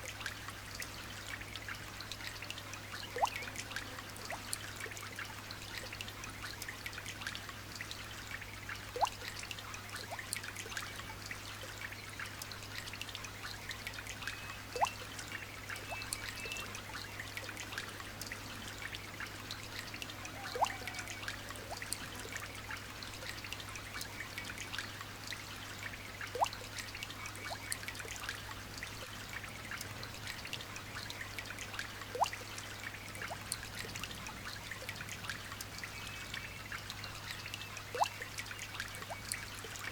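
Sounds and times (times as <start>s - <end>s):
light rain pattering: 0.0s - 39.9s
water drop plinking: 14.7s - 15.0s, 20.4s - 21.2s, 26.3s - 26.6s, 37.9s - 38.2s.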